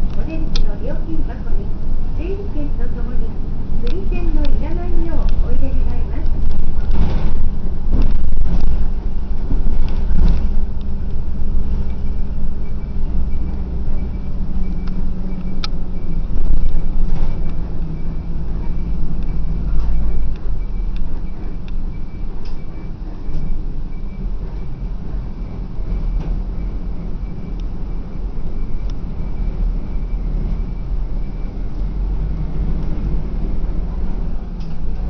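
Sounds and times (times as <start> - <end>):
bus engine rumbling: 0.0 - 35.0
faint high beeps: 11.4 - 32.0.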